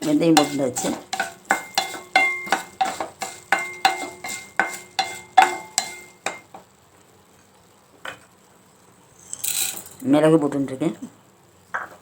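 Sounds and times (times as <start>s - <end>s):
spoon scraping a pan: 0.0s - 6.5s.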